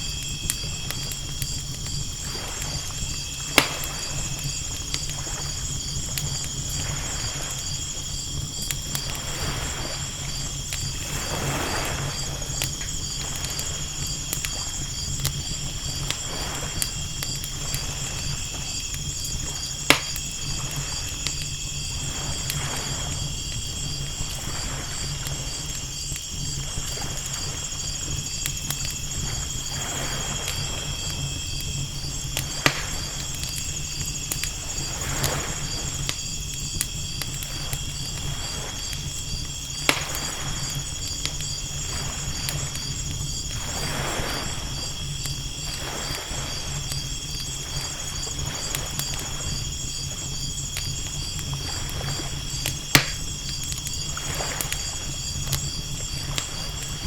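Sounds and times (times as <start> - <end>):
fire crackling and popping: 0.0 - 57.0
low rumble of surf: 0.0 - 57.0
night insects chirring: 0.0 - 57.0
ocean waves washing in: 9.2 - 15.0, 41.8 - 45.0.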